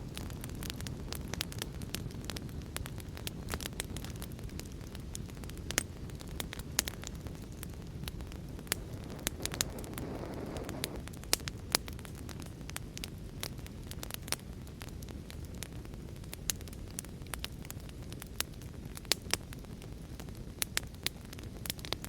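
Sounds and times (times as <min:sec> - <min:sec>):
wood fire crackling and popping: 0:00.0 - 0:22.0
heavy rain rumble: 0:08.1 - 0:11.0.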